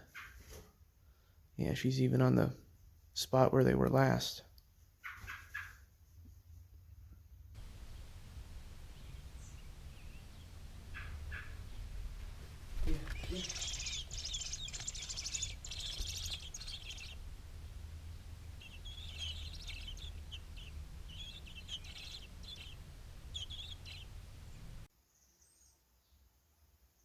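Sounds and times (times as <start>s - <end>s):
small birds chirping: 0.0s - 0.6s, 1.6s - 6.6s, 7.6s - 26.3s
low rumble of wind: 6.7s - 24.9s.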